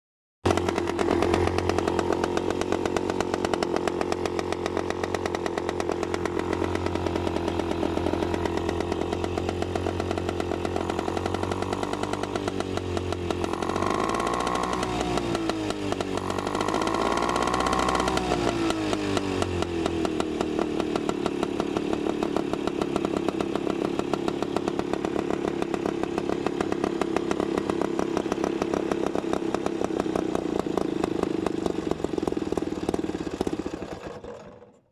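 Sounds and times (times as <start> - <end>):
outboard motor running: 0.5 - 18.4, 19.1 - 34.8.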